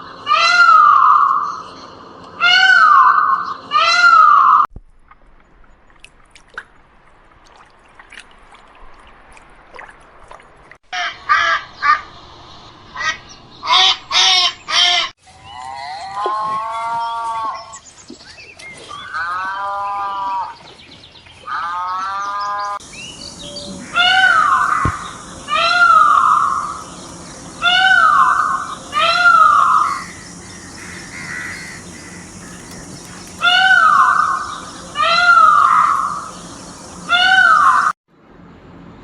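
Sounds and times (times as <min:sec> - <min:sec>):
animal calls: 0:21.5 - 0:38.0.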